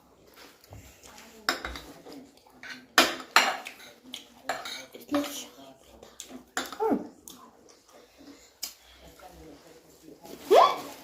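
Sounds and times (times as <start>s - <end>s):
cutlery scraping on plates: 1.4s - 5.5s.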